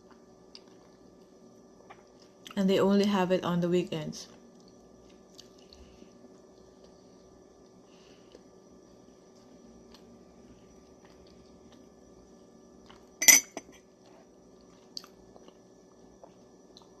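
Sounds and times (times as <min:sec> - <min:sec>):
faint chewing: 0:04.3 - 0:08.5, 0:09.3 - 0:11.9, 0:14.0 - 0:17.0.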